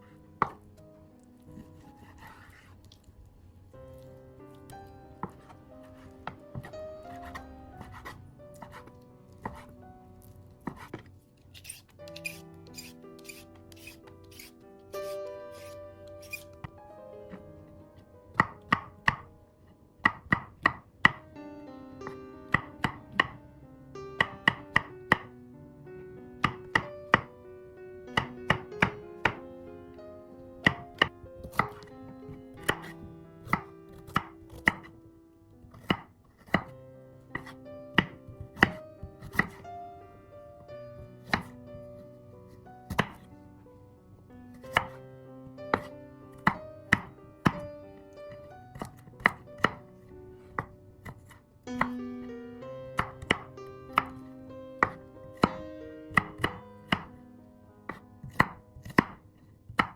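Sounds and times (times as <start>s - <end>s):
knife chopping on cutting board: 0.4s - 0.6s, 1.6s - 2.8s, 5.2s - 9.7s, 10.6s - 17.4s, 18.3s - 19.3s, 20.1s - 21.2s, 22.5s - 23.4s, 24.2s - 25.3s, 26.4s - 27.3s, 28.1s - 29.4s, 30.6s - 34.9s, 35.7s - 36.7s, 37.4s - 39.6s, 41.2s - 41.6s, 42.9s - 43.3s, 44.5s - 45.0s, 45.7s - 47.7s, 48.4s - 49.8s, 50.5s - 52.0s, 53.0s - 54.2s, 54.8s - 57.2s, 57.9s - 59.9s.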